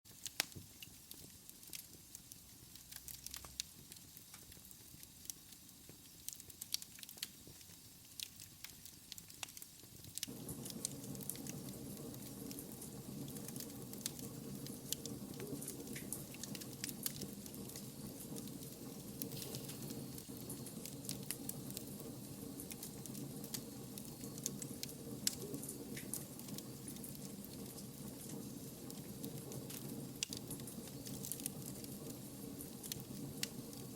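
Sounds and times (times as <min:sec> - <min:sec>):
wood fire crackling: 0:00.1 - 0:33.9
steady low hum: 0:10.3 - 0:33.9.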